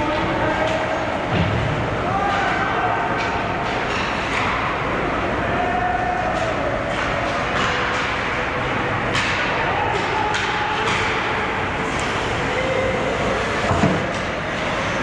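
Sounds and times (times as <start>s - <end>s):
arena crowd: 0.0s - 15.0s
hockey sticks and puck clacking: 0.0s - 15.0s.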